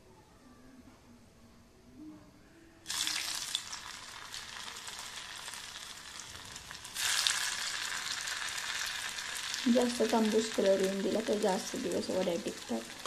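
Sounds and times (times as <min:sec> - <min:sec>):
food sizzling in hot oil: 0:02.9 - 0:13.0.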